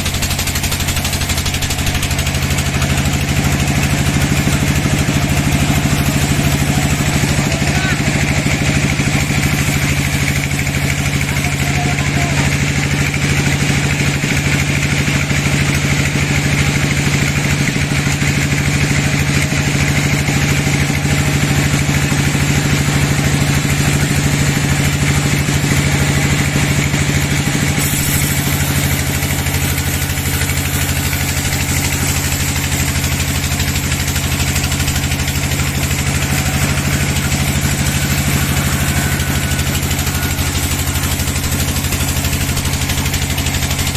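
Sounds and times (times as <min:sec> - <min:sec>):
bandsaw engine humming: 0:00.0 - 0:43.9
high hiss: 0:27.8 - 0:32.9.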